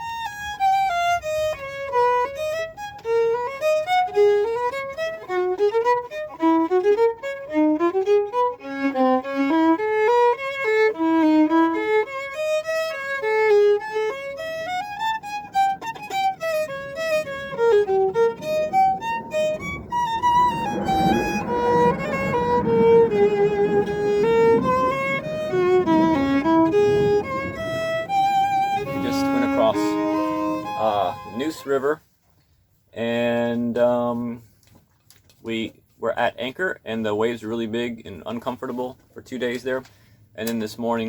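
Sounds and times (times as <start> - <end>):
fiddle playing quick melody: 0.0 - 32.0
rushing noise: 16.4 - 31.7.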